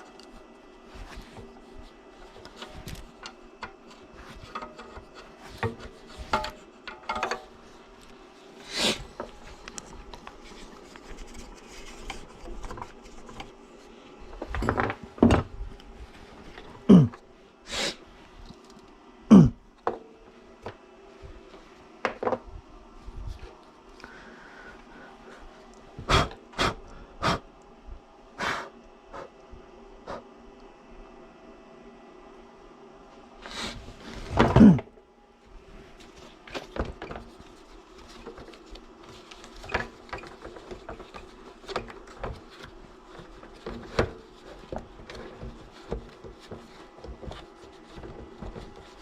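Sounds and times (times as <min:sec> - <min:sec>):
faint steady hum: 0:00.0 - 0:49.0
knocks and scrapes of tools: 0:02.2 - 0:08.1, 0:08.8 - 0:15.6, 0:36.0 - 0:49.0.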